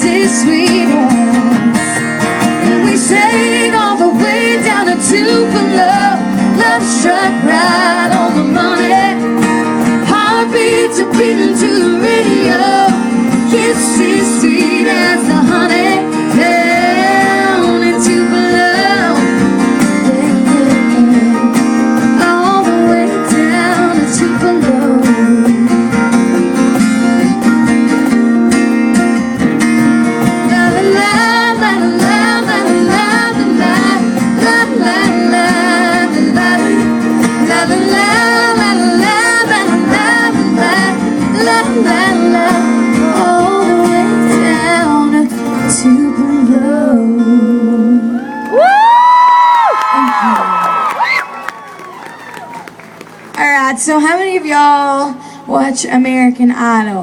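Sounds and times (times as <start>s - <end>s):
country band playing: 0.0s - 57.0s
wordless singing: 2.8s - 9.3s, 10.0s - 19.3s, 30.5s - 45.2s.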